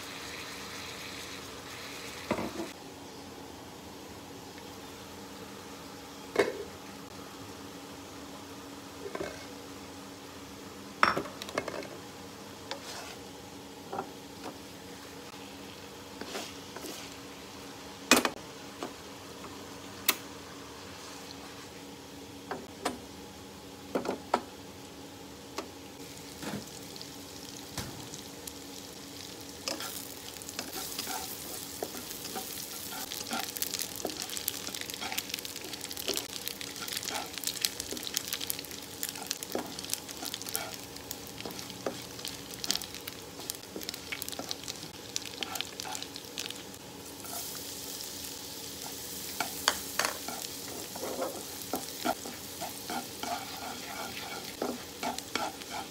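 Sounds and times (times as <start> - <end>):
hot oil sizzling and crackling: 0.0 - 2.8, 25.9 - 55.9
spatula scraping in a wok: 12.7 - 13.2, 16.2 - 17.2, 30.6 - 35.3, 48.8 - 55.9.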